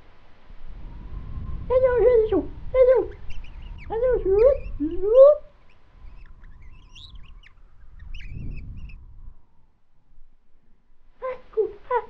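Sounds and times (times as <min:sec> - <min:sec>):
low rumble: 0:00.0 - 0:11.1
small birds chirping: 0:01.3 - 0:09.7.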